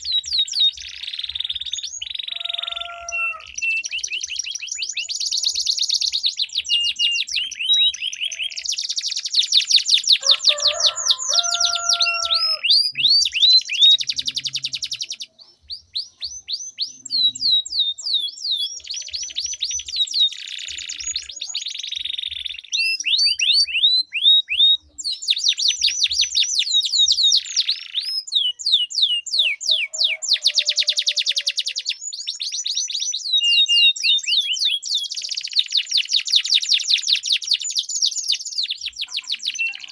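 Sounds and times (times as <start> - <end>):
canaries trilling: 0.0 - 39.9.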